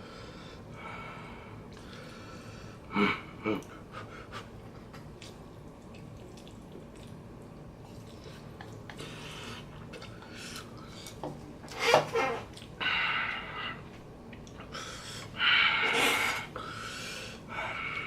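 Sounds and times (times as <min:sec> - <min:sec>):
soft breath: 0:00.0 - 0:02.8
wet chewing smacks: 0:04.8 - 0:11.2.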